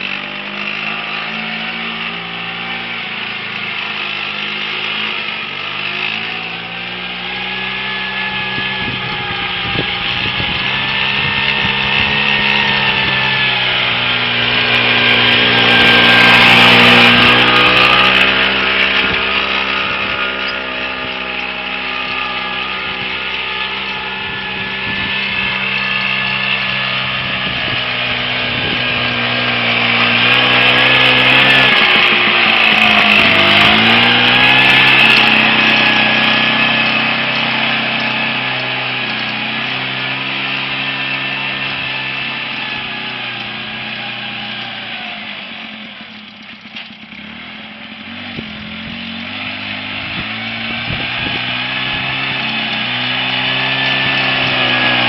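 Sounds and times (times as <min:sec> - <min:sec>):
two-stroke tractor engine running: 0:00.0 - 0:55.0.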